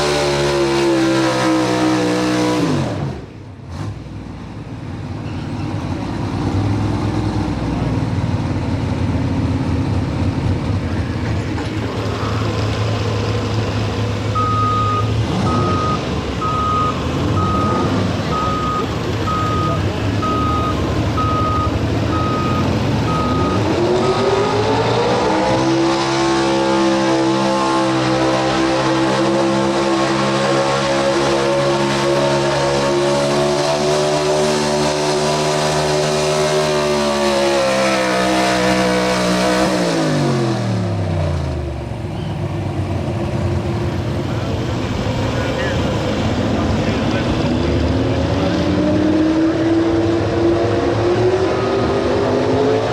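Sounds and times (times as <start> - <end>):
truck engine revving: 0.0 - 52.9
electronic beeping: 14.4 - 24.6.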